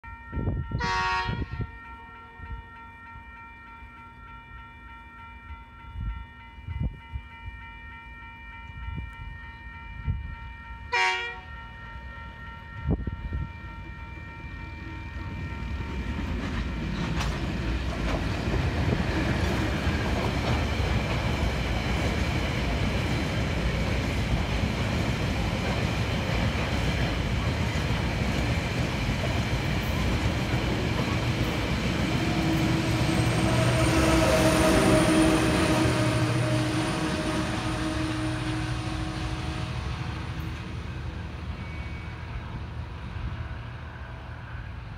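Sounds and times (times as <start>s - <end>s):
train horn blast: 0.7s - 1.7s, 10.9s - 11.5s, 32.0s - 40.5s
locomotive passing: 11.0s - 44.9s.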